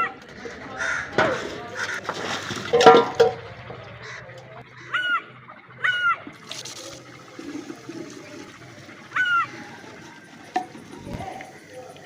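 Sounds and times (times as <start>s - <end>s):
bird calls: 3.5s - 12.0s.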